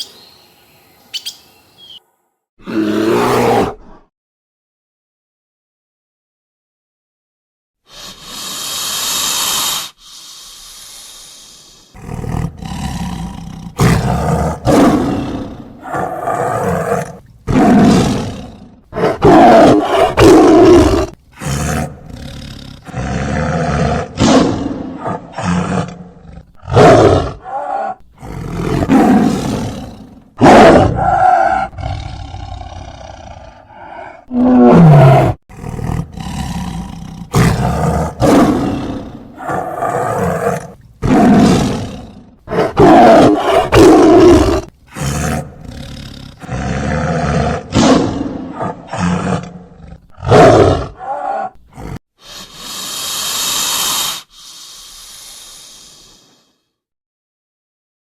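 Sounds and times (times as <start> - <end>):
big cat roaring: 2.6 - 4.0, 12.0 - 52.0
big cat hissing: 7.9 - 56.7.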